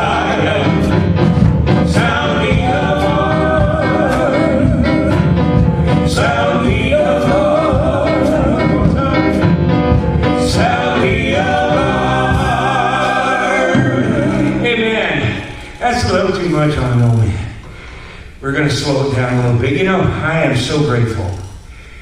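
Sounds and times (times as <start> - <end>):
person singing with vibrato: 0.0 - 9.7, 10.3 - 16.0
steady beat: 0.0 - 16.5
instrumental accompaniment: 0.0 - 17.2.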